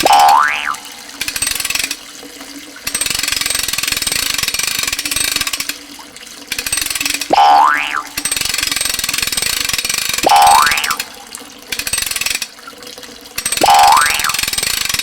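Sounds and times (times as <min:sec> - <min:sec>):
cartoon boing effect: 0:00.0 - 0:01.0, 0:07.3 - 0:08.3, 0:10.2 - 0:11.2, 0:13.6 - 0:14.5.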